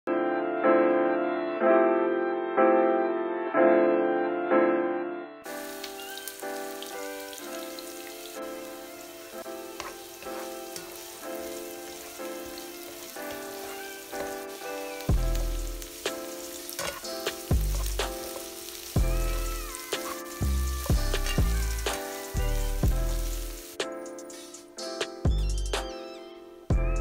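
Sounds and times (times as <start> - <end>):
soft piano background music: 0.1 - 27.0
vegetables sizzling in hot oil: 5.5 - 23.8
spatula stirring in pan: 9.4 - 23.7
deep bass notes: 17.5 - 18.2.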